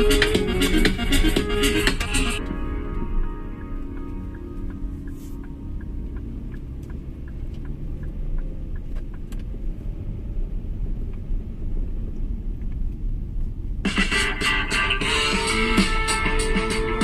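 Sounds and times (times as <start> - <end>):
car rumbling on the move: 0.0 - 17.0
faint regular ticking: 3.6 - 9.8.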